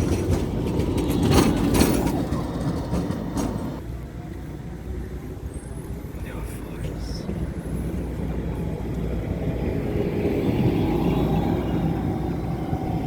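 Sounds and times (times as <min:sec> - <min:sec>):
sharp clacks of rails: 0:00.0 - 0:03.8
tram rumbling on rails: 0:00.0 - 0:13.0.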